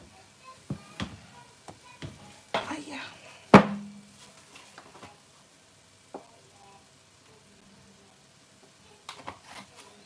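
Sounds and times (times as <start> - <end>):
curry sizzling in a pot: 0.0 - 10.0.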